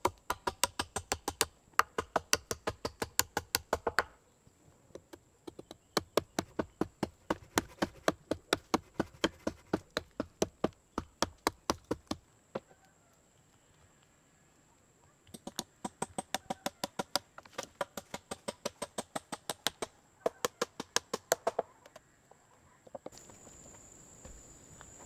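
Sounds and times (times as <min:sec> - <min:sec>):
hand tool knocking on wood: 0:00.0 - 0:04.2, 0:05.0 - 0:12.2.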